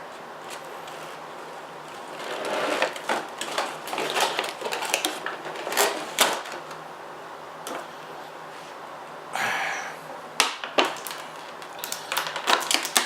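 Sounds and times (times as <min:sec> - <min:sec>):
packaging rustling and scraping: 0:00.0 - 0:06.8, 0:10.6 - 0:13.0.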